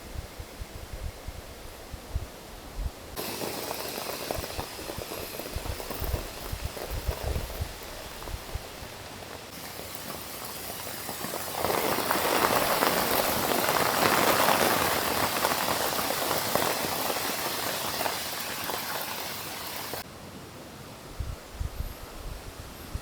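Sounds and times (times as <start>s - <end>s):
heavy rain pattering: 3.2s - 20.0s.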